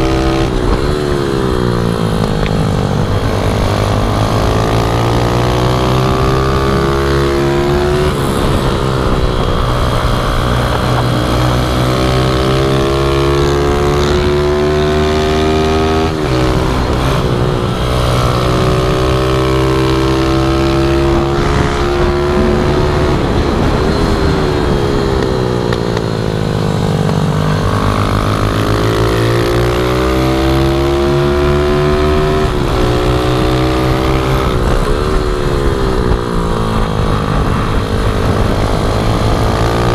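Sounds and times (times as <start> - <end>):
pit bike engines revving: 0.0 - 39.9
low engine hum: 15.9 - 29.7.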